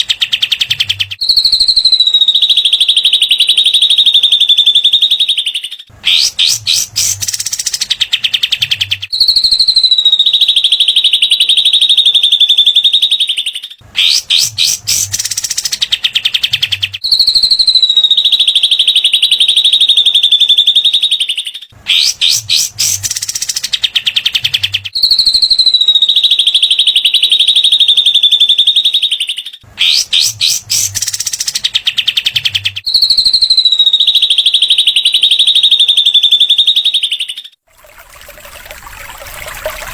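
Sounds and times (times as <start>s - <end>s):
bird trilling: 6.0s - 8.1s, 14.0s - 16.3s, 21.3s - 26.2s, 28.2s - 34.2s.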